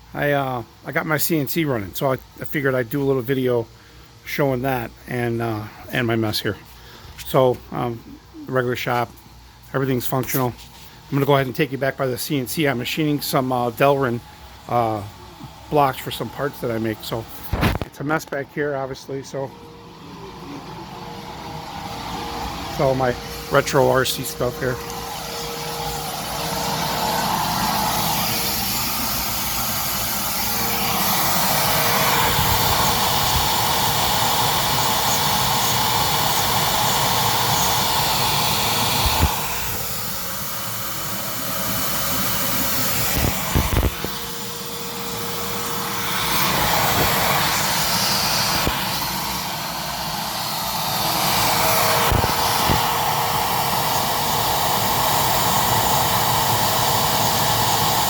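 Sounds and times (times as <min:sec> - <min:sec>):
cnc machine milling: 0:19.7 - 0:58.0.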